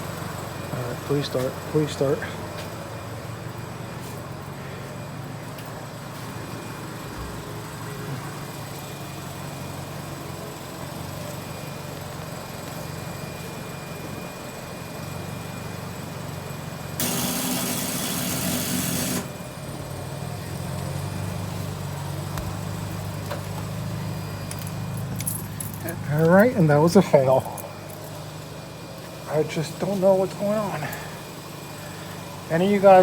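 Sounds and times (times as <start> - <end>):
car starter whirring: 0.0 - 33.0
steady low hum: 19.4 - 33.0.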